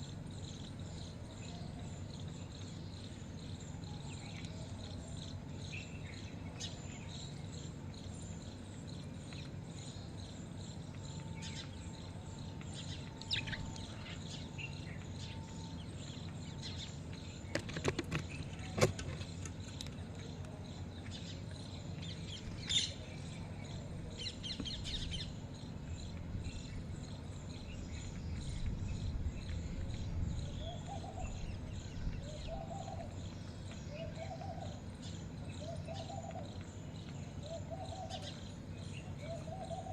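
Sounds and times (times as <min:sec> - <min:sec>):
birds chirping: 0:00.0 - 0:39.9
low background noise: 0:00.0 - 0:39.9.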